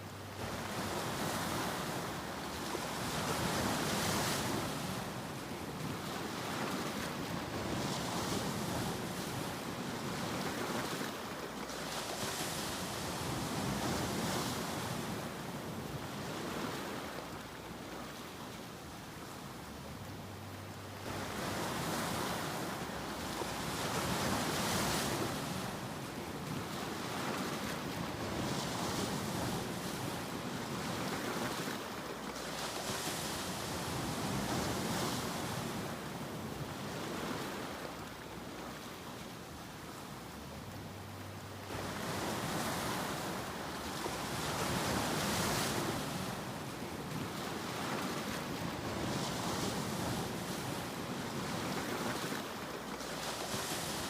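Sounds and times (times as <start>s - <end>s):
ocean waves breaking on shore: 0.0s - 54.0s.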